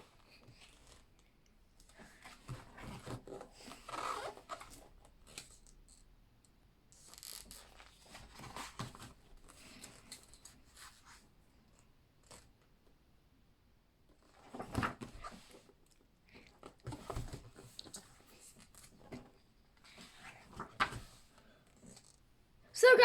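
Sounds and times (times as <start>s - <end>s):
book pages turning: 19.9s - 21.2s.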